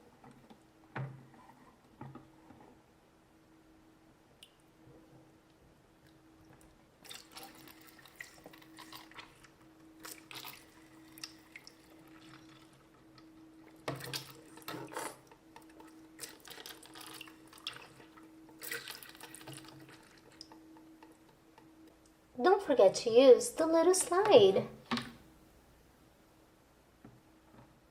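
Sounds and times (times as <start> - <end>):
faint steady hum: 0.0 - 27.9
water splashing and dripping: 15.6 - 21.1.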